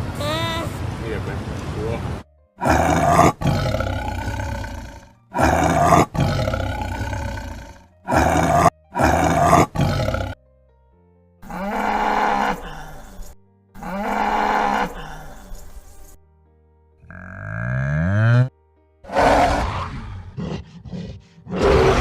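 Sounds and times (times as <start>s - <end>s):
big cat roaring and growling: 2.6s - 10.4s, 11.4s - 13.2s, 13.8s - 15.4s, 17.0s - 18.5s, 19.1s - 22.0s.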